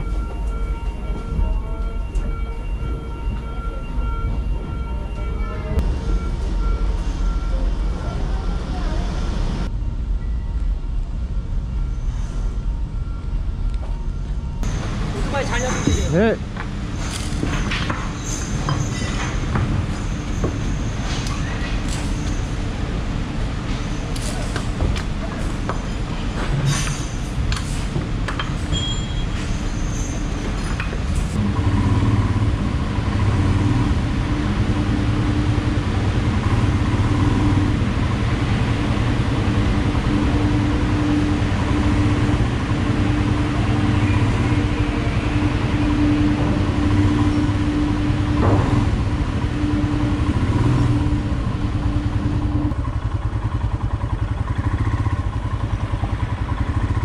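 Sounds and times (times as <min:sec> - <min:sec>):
motorcycle engine running: 0:31.4 - 0:57.0.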